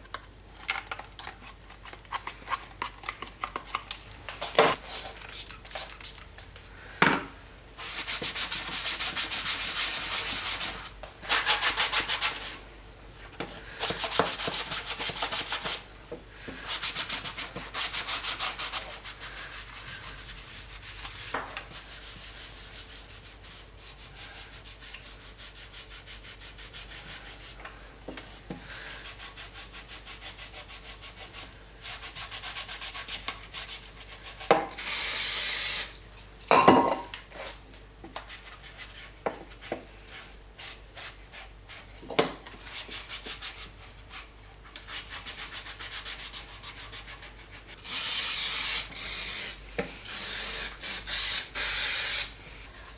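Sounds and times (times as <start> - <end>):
scrubbing a surface: 16.6 - 27.6, 42.6 - 48.8.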